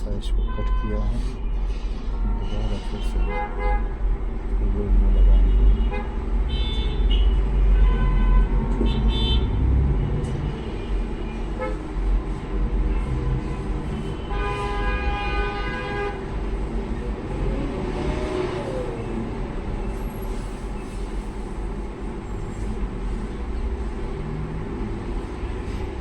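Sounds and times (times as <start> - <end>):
road traffic rumble: 0.0 - 26.0
vehicle horn: 0.3 - 1.6, 2.2 - 4.0, 5.1 - 9.6, 10.3 - 12.0, 12.9 - 16.7.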